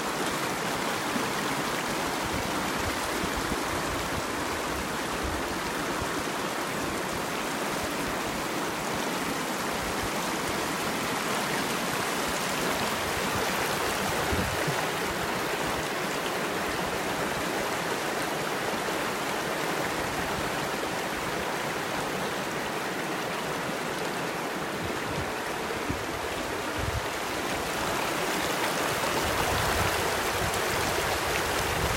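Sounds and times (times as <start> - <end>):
river water rushing: 0.0 - 31.9.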